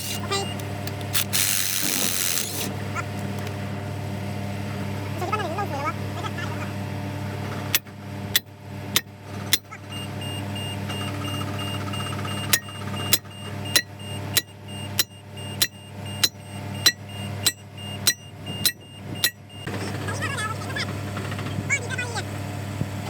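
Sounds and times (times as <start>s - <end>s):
engine hum: 0.0s - 23.0s
faint rapid beeping: 9.6s - 19.7s
hammer striking steel: 12.6s - 19.4s.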